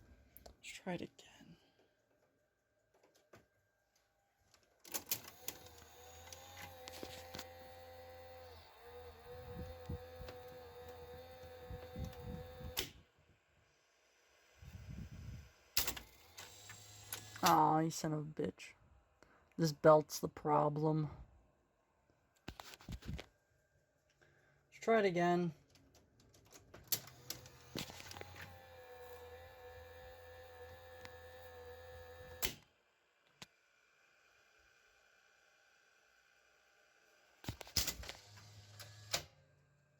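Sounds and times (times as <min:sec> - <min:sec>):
tape mechanism whining and rumbling: 0:04.4 - 0:13.2, 0:14.6 - 0:17.8, 0:25.7 - 0:32.7.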